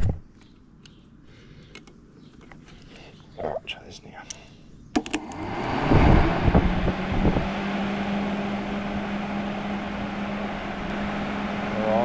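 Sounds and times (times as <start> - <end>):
cooling fan humming: 3.8 - 12.0
air buffeting thumps: 5.2 - 11.8.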